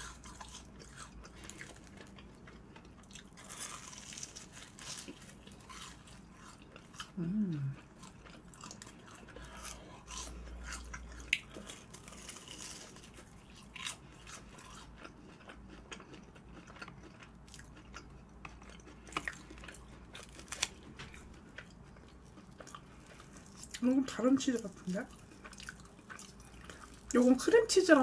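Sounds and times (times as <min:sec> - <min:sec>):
chewing crunchy fried food: 0:00.0 - 0:28.0.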